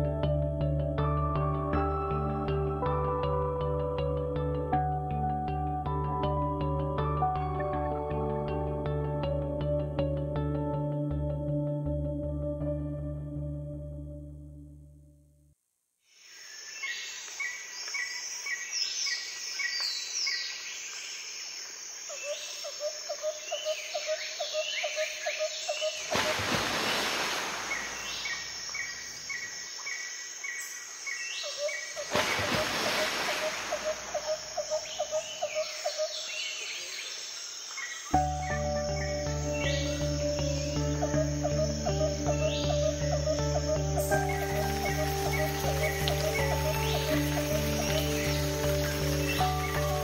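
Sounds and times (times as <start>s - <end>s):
birds chirping and whistling: 37.8s - 50.0s.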